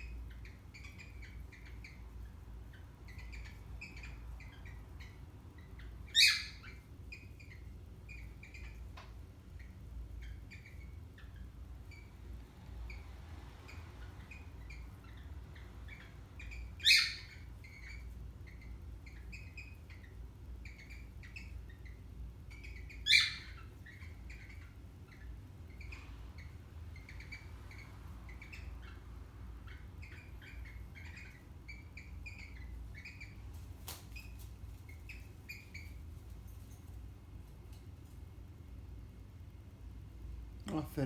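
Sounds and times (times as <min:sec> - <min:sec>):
parrots chirping softly: 0:00.0 - 0:41.0
parrot squawks: 0:06.1 - 0:08.8, 0:15.9 - 0:33.4.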